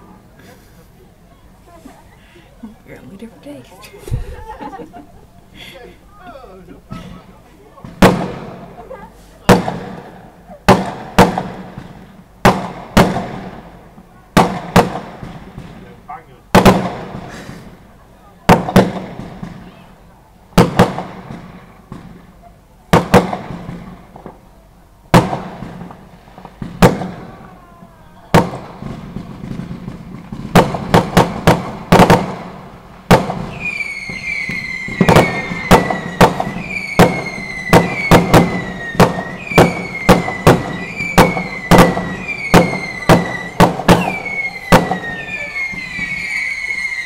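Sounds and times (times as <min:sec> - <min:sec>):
fireworks bangs: 0:01.7 - 0:47.0
whistling fireworks: 0:06.9 - 0:24.5, 0:25.1 - 0:47.0.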